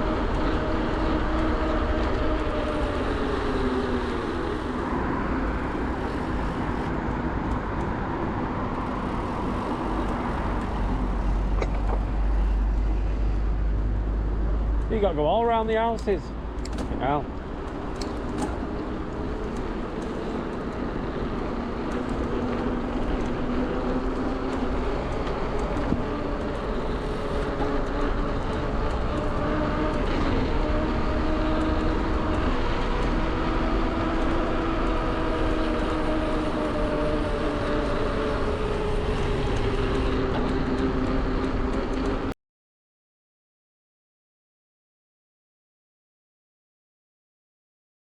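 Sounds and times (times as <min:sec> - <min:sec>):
e-bike motor whining: 0:00.0 - 0:07.0, 0:08.8 - 0:13.3, 0:17.0 - 0:42.0
wind rumble on microphone: 0:00.0 - 0:15.0, 0:16.3 - 0:42.3.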